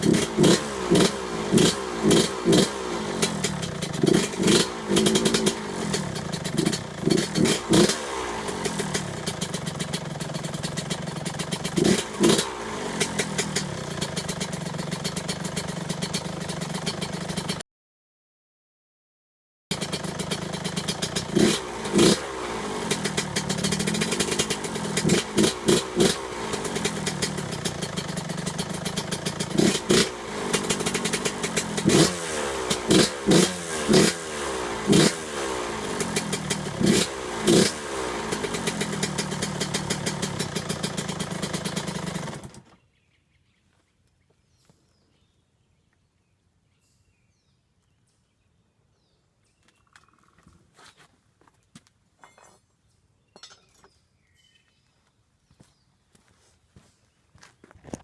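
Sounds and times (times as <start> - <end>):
two-stroke motorcycle engine revving: 0.0 - 17.6, 19.7 - 42.8.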